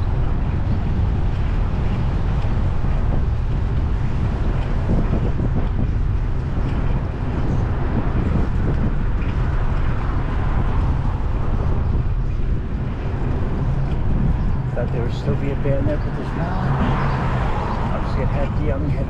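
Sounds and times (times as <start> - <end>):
street traffic: 0.0 - 19.0
wind rumbling on microphone: 0.0 - 19.0.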